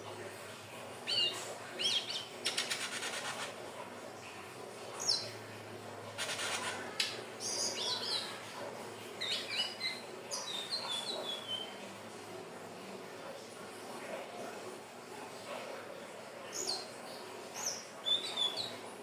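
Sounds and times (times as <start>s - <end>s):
bird singing squeaky phrases: 9.2s - 11.8s.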